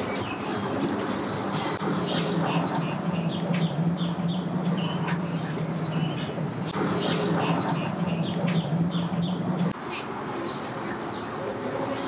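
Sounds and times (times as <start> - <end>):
steady low hum: 0.0 - 9.8
birds chirping: 0.0 - 12.0.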